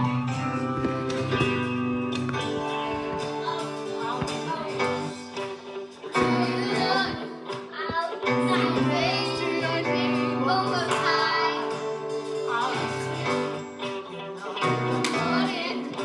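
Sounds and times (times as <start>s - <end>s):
instrumental accompaniment: 0.0s - 15.7s.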